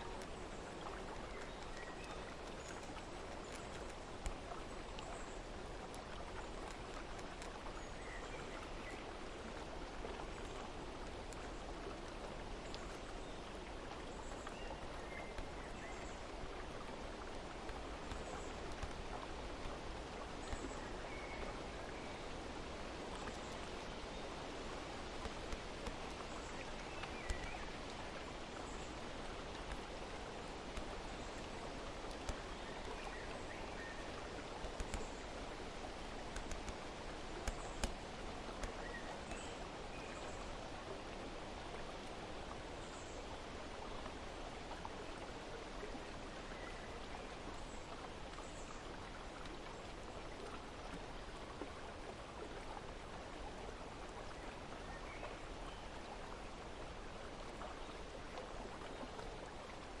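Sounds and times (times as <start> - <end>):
flowing water: 0.0 - 60.0
light clicks: 17.6 - 19.8, 25.2 - 28.0, 34.6 - 35.3, 36.1 - 39.4.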